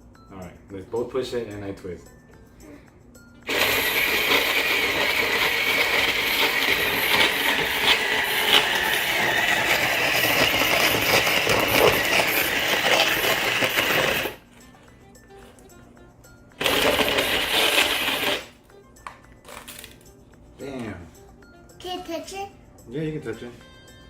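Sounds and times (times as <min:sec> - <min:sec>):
ice being crushed: 0:03.5 - 0:14.4, 0:16.6 - 0:18.5.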